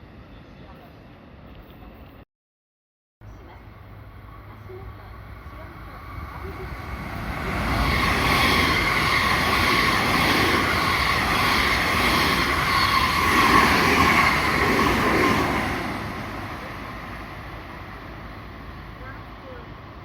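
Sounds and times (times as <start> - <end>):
electric train high whine: 3.8 - 20.0
train wheels rumbling on rail: 4.7 - 20.0.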